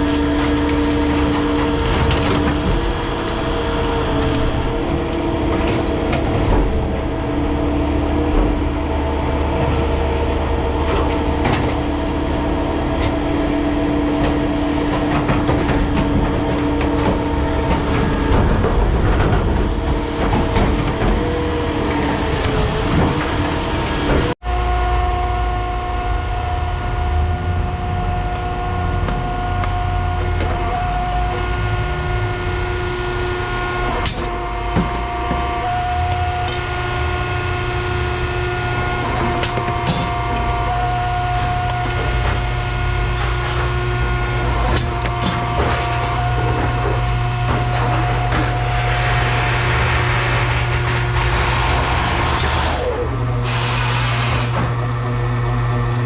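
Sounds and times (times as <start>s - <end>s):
large motor rumble and whine: 0.0s - 56.0s.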